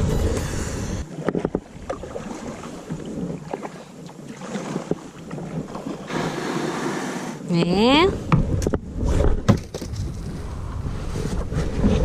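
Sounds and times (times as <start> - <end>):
wind rumble on microphone: 0.0 - 3.7, 7.4 - 12.0
kayak paddle splashing: 0.0 - 7.4.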